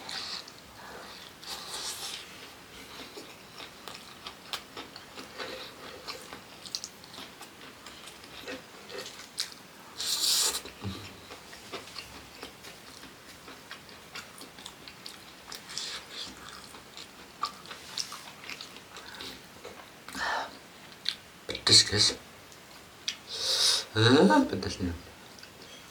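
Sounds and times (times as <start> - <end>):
chewing and biting food: 2.8 - 9.6.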